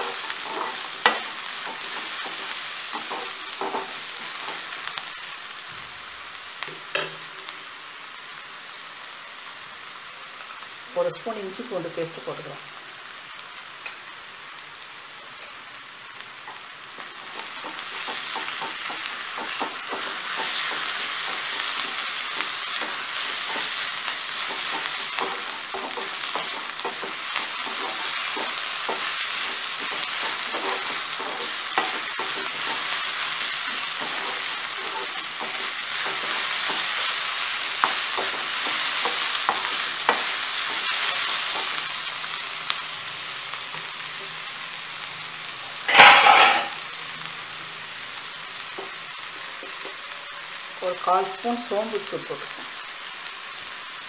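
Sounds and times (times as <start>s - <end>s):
onions sizzling in hot oil: 0.0s - 54.0s
metal spatula scraping pan: 45.9s - 46.8s.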